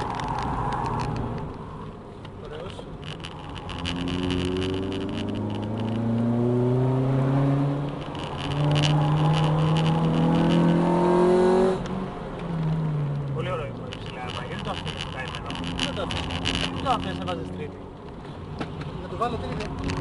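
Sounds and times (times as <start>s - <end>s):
car engine accelerating: 2.7s - 17.8s.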